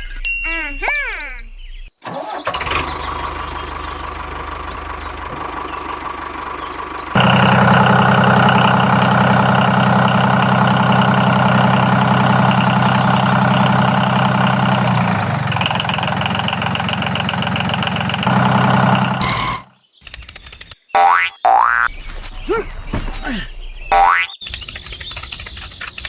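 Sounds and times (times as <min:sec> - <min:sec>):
tractor engine idling: 0:02.1 - 0:19.7.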